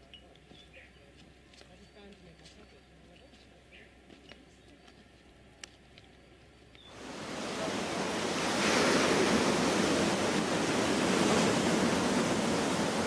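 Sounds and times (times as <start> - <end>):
ocean surf rushing: 6.9 - 13.0.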